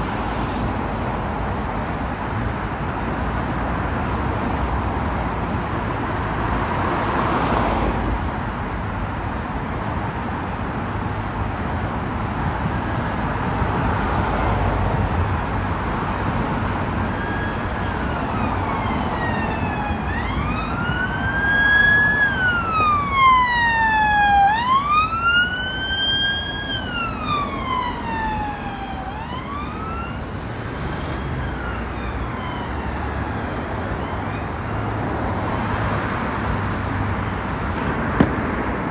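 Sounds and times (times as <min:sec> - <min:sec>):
road traffic: 0:00.0 - 0:38.9
emergency vehicle wail siren: 0:12.5 - 0:36.8
vehicle passing close: 0:12.9 - 0:34.0.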